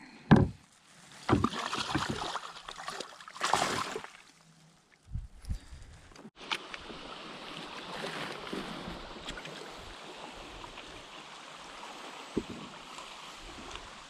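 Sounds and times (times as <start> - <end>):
small splashes: 1.1 - 4.5
water rushing and lapping: 1.1 - 4.5, 6.4 - 14.0.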